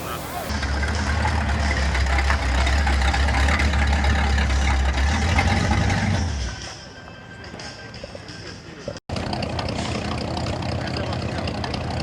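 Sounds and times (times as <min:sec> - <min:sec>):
car engine rumbling: 0:00.0 - 0:06.5, 0:09.1 - 0:12.0.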